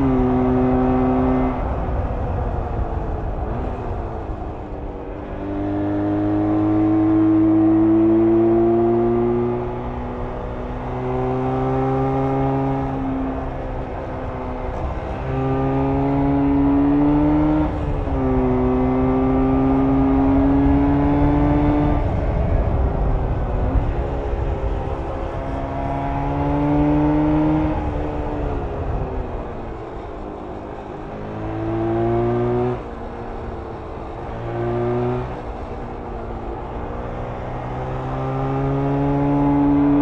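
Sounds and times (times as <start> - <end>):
two-stroke motorcycle engine revving: 37.5 - 40.0.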